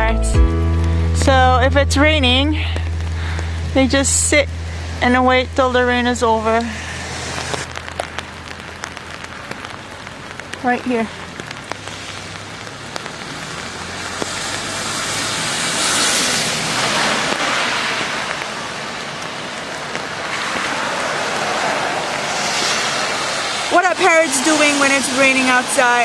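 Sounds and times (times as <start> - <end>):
rain falling: 0.0 - 26.0.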